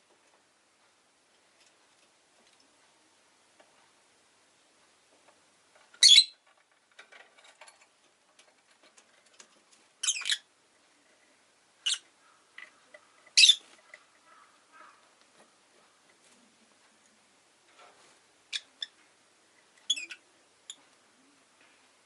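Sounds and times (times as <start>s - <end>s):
lovebird shrill calls: 6.0s - 6.4s, 10.0s - 10.4s, 11.8s - 12.0s, 13.4s - 13.6s, 19.9s - 20.2s
soft bird chattering: 6.0s - 6.4s, 11.8s - 15.0s, 18.5s - 19.0s, 19.8s - 20.8s.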